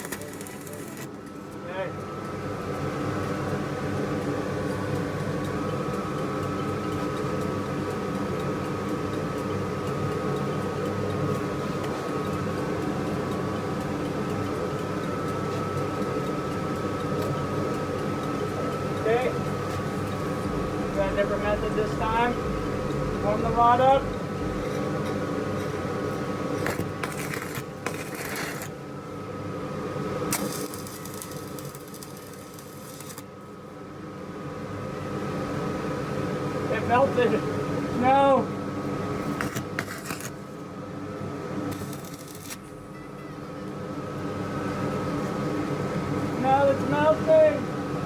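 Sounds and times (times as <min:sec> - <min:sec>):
electrode clicking on metal: 0:00.0 - 0:01.1, 0:30.3 - 0:33.3, 0:41.7 - 0:42.8
welding arc crackle: 0:00.0 - 0:01.1, 0:26.6 - 0:28.8, 0:30.3 - 0:33.3, 0:41.6 - 0:42.8
welding machine hum: 0:00.0 - 0:01.3, 0:17.7 - 0:33.6, 0:41.3 - 0:43.0
droning machinery hum: 0:00.0 - 0:48.0.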